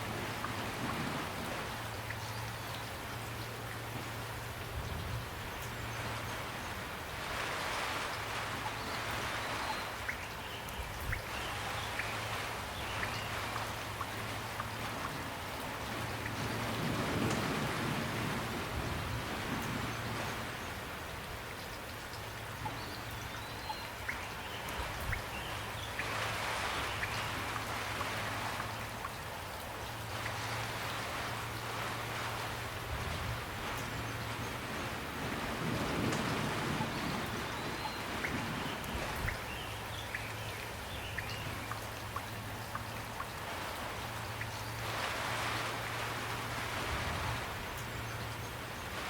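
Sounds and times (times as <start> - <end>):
steady rain falling: 0.0 - 49.0.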